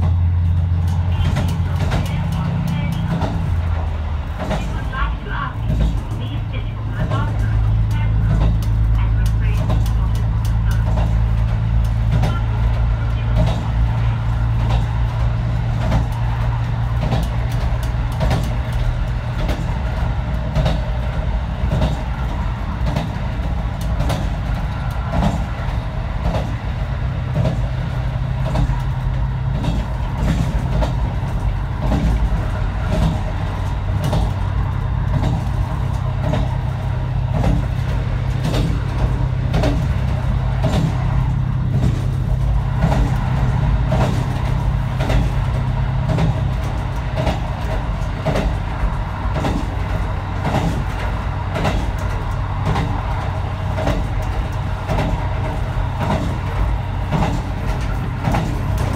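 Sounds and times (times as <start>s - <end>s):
diesel railcar engine drone: 0.0s - 58.9s
train wheels clickety-clack: 0.0s - 58.9s.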